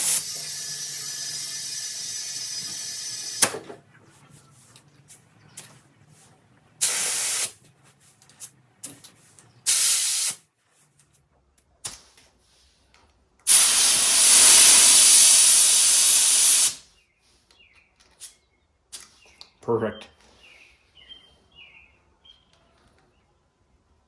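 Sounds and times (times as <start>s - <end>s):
compressed air hissing into tire: 0.0s - 3.6s, 6.8s - 7.6s, 9.7s - 10.4s, 13.5s - 16.8s.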